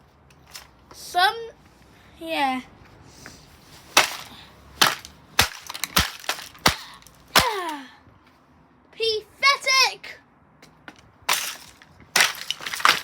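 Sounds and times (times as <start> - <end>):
plastic casing cracking under blows: 4.0 - 7.8, 11.3 - 13.0.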